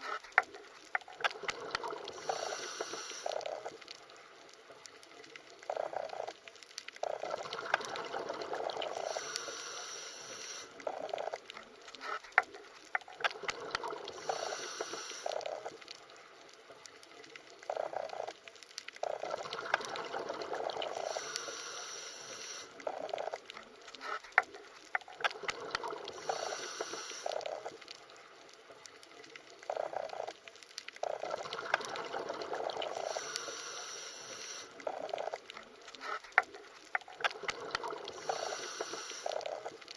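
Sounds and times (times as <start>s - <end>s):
underwater bubbling and gurgling: 0.0s - 39.9s
hissy noise: 2.1s - 3.7s, 8.9s - 10.8s, 14.1s - 15.7s, 20.9s - 22.8s, 26.1s - 27.7s, 32.9s - 34.8s, 38.1s - 39.7s.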